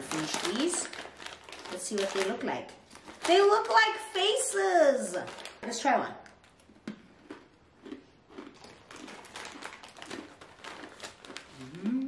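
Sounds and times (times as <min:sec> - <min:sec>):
person chewing crunchy snack: 0:06.8 - 0:12.0.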